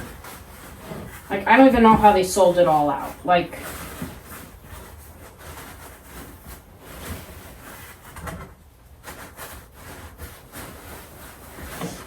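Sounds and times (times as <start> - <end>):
plastic and fabric rustling: 0.0 - 12.0.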